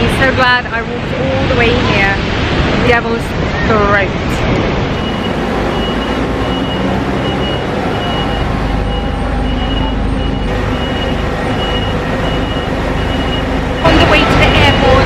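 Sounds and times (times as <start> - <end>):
vehicle running heard from inside: 4.9 - 15.0.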